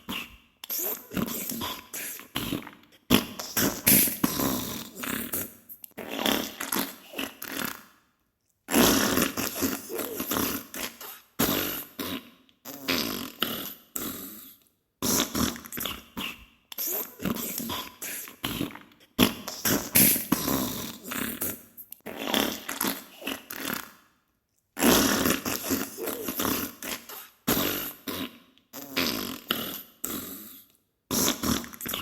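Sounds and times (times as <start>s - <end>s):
sputtering fart bursts: 0.0s - 7.8s, 8.7s - 13.6s, 16.8s - 24.0s, 24.8s - 29.9s, 31.1s - 32.0s.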